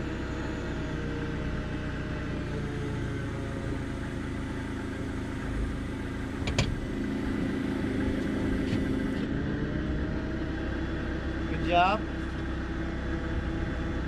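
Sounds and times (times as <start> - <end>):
forklift engine running: 0.0 - 14.0.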